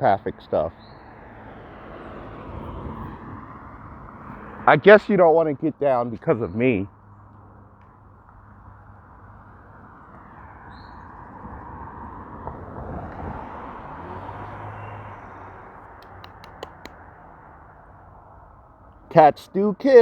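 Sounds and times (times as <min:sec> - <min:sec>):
sharp clicks: 0:15.9 - 0:17.0.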